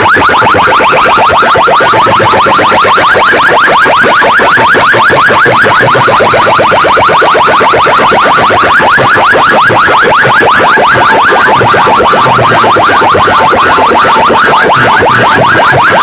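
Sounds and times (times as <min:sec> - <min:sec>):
electronic siren chirps: 0:00.0 - 0:16.0.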